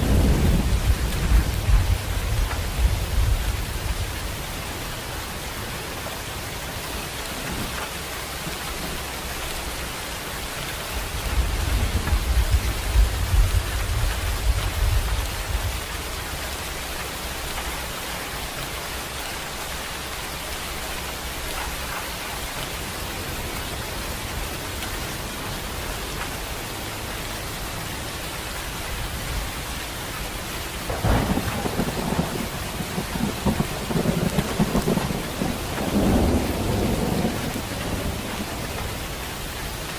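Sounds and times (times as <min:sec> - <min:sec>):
sharp thunderclap: 0:00.0 - 0:03.5, 0:30.9 - 0:38.8
rolling thunder: 0:00.0 - 0:04.5, 0:11.0 - 0:15.8, 0:30.8 - 0:39.0
steady rain: 0:00.0 - 0:39.9.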